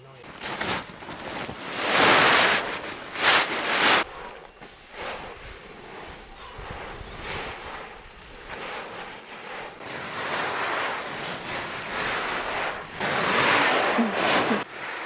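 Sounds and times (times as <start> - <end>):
rustling swishing noise: 0.4 - 15.0.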